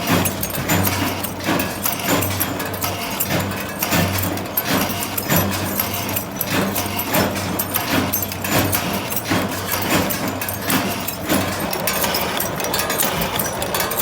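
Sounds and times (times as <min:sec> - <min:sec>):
factory machinery humming: 0:00.0 - 0:14.0
metal parts clanking: 0:00.0 - 0:14.0.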